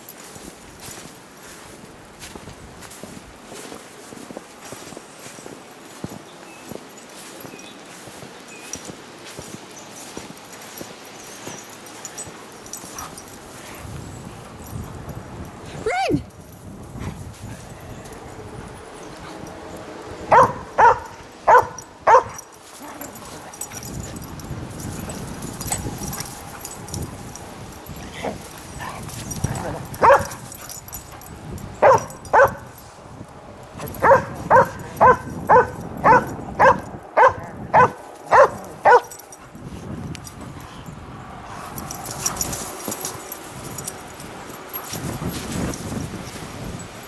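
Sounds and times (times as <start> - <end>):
dog barking: 20.3 - 23.6, 28.8 - 30.4, 31.8 - 32.8, 33.8 - 39.2.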